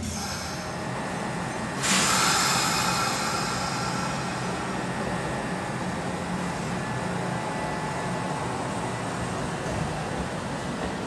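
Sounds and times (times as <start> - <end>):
train brakes air hiss: 0.0 - 1.0, 1.6 - 5.4
electric train humming: 0.0 - 11.0.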